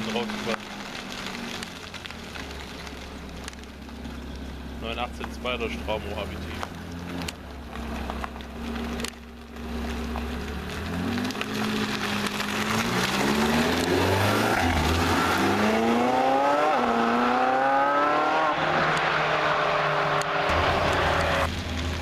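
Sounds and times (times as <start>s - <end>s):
car engine accelerating hard: 3.1s - 22.0s
loud rush of noise: 18.6s - 22.0s.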